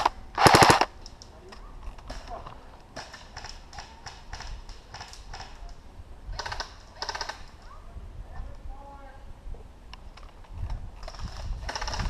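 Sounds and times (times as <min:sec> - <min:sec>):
airsoft gun shots: 0:00.0 - 0:00.9
full-auto airsoft bursts: 0:00.0 - 0:00.9.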